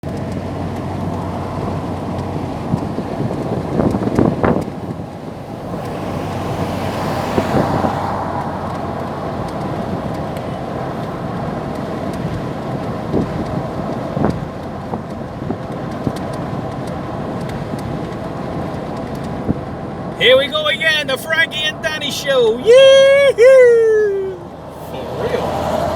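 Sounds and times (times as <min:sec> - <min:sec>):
car road and engine rumble: 0:00.0 - 0:25.9
rushing noise: 0:04.8 - 0:10.4.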